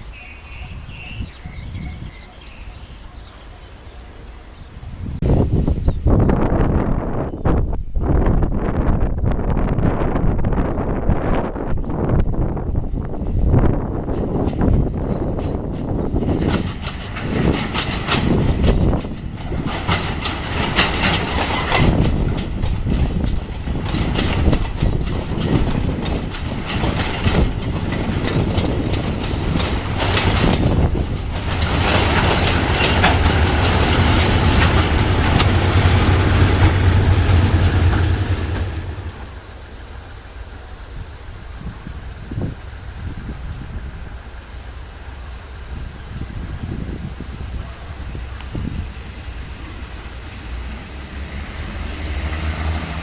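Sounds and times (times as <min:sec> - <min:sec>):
train wheels clicking over joints: 0:14.0 - 0:40.0.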